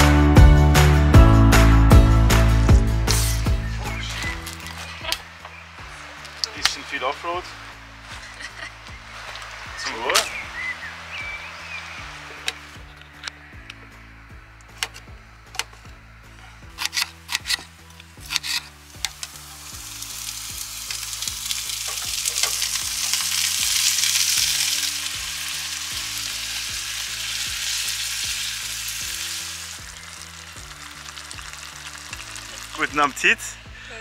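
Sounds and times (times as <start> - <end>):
background music: 0.0 - 34.0
food sizzling in a pan: 18.8 - 33.6.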